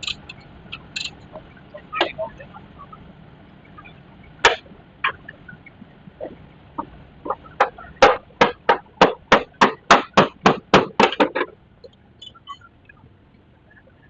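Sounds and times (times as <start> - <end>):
rapid sharp knocks: 6.8 - 11.6.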